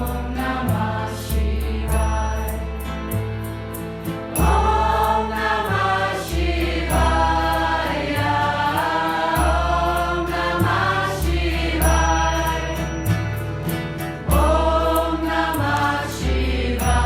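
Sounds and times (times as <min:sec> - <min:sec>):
deep sustained bass notes: 0:00.0 - 0:17.0
group chanting: 0:04.4 - 0:12.8, 0:14.3 - 0:17.0.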